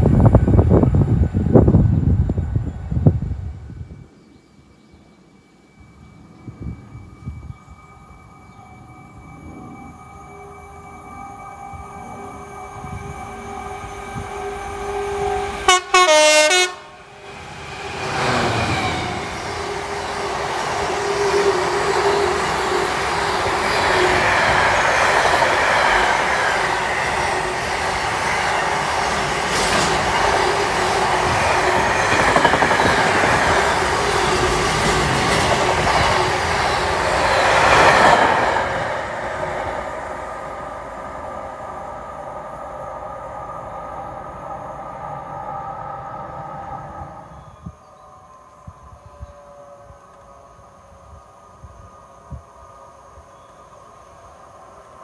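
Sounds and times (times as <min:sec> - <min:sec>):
train passing at speed: 0:00.0 - 0:55.0
train horn: 0:11.7 - 0:19.9, 0:47.8 - 0:53.7.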